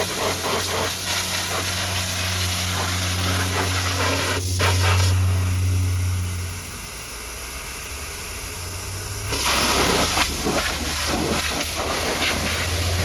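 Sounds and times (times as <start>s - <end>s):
high-pressure water jet hissing: 0.0s - 13.0s
pump humming: 0.0s - 13.0s.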